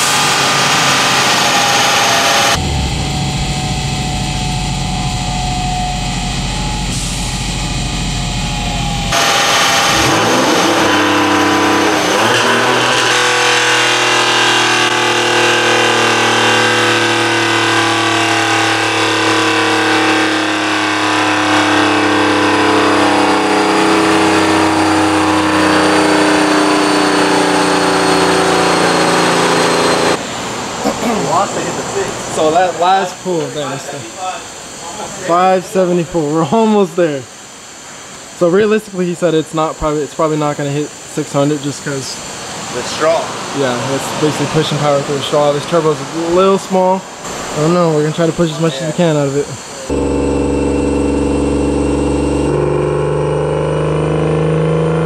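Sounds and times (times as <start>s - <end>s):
car engine running: 0.0s - 30.2s, 49.9s - 55.0s.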